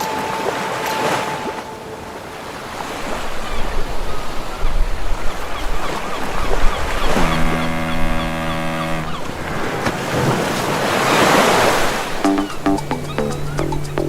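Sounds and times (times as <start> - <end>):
sea water splashing against boat: 9.1 - 12.2.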